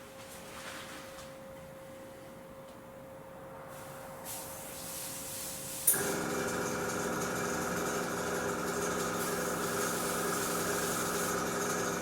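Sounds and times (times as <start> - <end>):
airbrush air hissing: 3.7 - 6.2, 9.2 - 11.5
compressor humming: 5.9 - 12.0.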